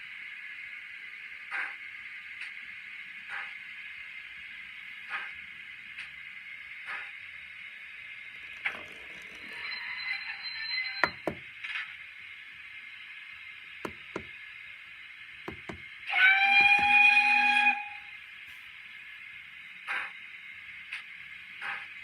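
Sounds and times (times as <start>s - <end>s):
model locomotive humming: 3.3s - 11.6s, 12.3s - 19.5s
wheels clicking over rail joints: 8.4s - 9.8s
locomotive whistle: 16.1s - 18.2s.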